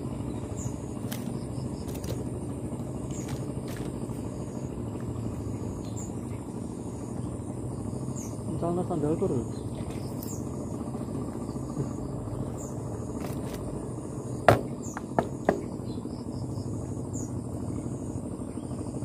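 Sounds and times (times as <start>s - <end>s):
insects chirring: 0.0s - 19.0s
low rumbling background: 0.0s - 19.0s
sharp knocks: 14.4s - 15.7s.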